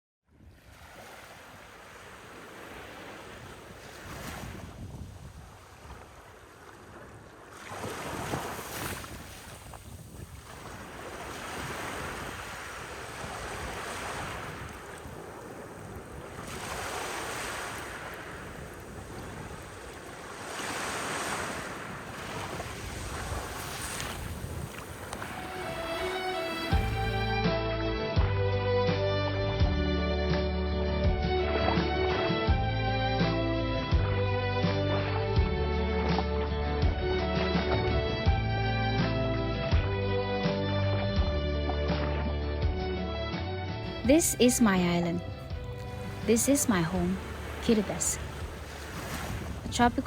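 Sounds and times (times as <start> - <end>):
ocean waves breaking: 0.4 - 27.6, 43.8 - 50.0
wind buffeting microphone: 3.2 - 27.1, 46.9 - 50.0.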